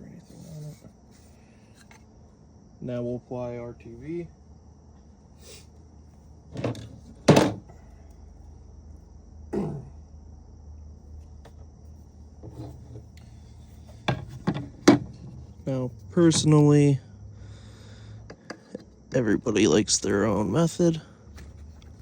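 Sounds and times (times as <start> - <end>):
tools knocking on workbench: 6.6 - 7.7, 14.0 - 15.4.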